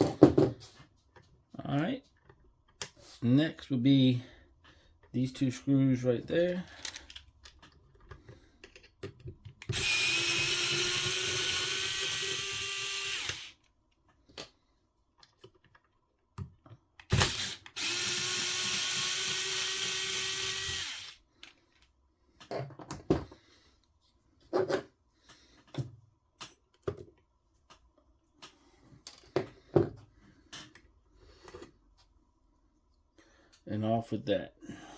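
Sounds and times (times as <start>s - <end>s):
small parts clicking and knocking: 6.5s - 23.3s
power screwdriver motor whine: 9.7s - 13.6s, 17.1s - 21.2s.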